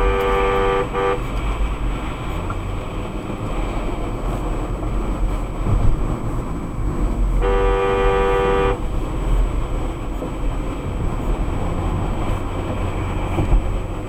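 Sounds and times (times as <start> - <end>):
car horn blast: 0.0 - 1.4, 7.4 - 8.9
road and engine rumble: 0.0 - 14.0.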